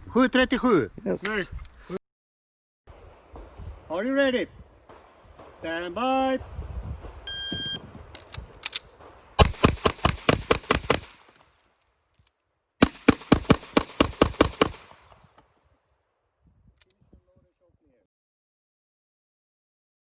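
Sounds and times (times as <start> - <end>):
shot timer beep: 7.3 - 7.9
pistol shots in rapid strings: 9.0 - 11.3, 12.8 - 15.2.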